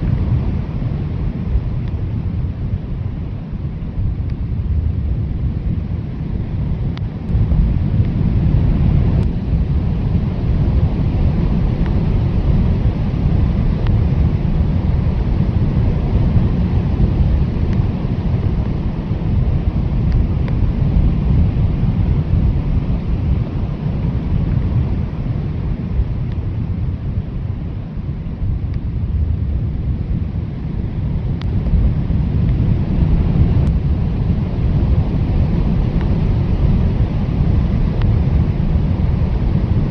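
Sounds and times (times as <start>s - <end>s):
blizzard wind blowing hard: 0.0s - 39.9s.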